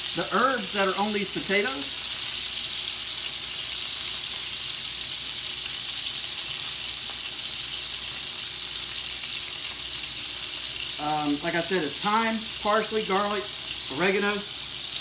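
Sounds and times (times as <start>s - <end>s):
steaks sizzling in a skillet: 0.0s - 15.0s.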